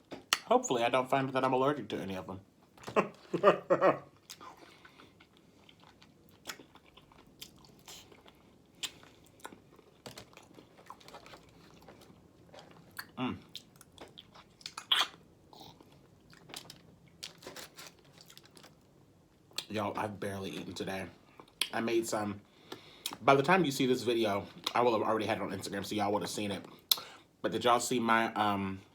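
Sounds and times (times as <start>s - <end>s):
person chewing food: 2.8s - 18.8s.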